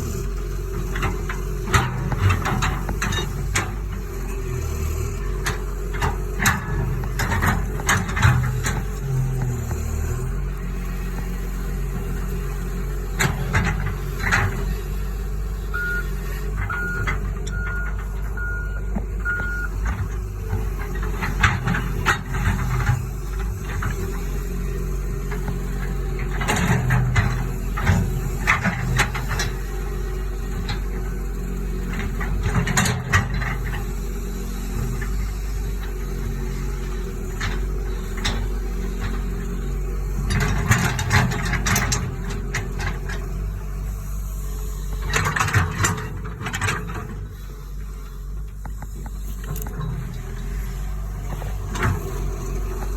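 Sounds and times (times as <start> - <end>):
excavator diesel engine running: 0.0 - 52.9
knocks and clanks: 5.4 - 9.9
travel alarm beeping: 15.7 - 16.1, 16.7 - 19.8.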